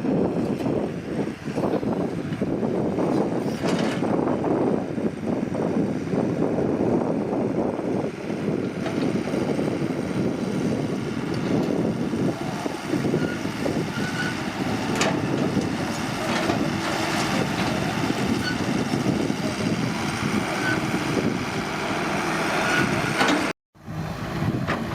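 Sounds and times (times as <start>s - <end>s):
excavator diesel engine running: 0.0s - 24.9s.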